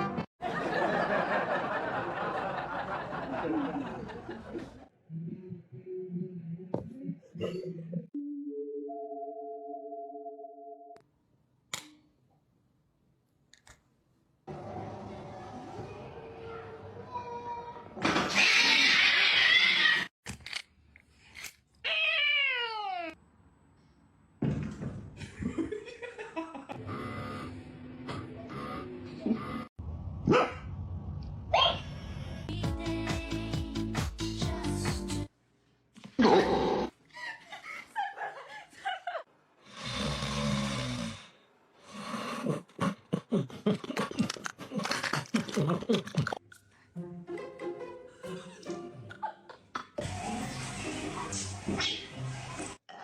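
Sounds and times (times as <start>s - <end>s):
raspy snore-like breath: 39.6s - 43.0s.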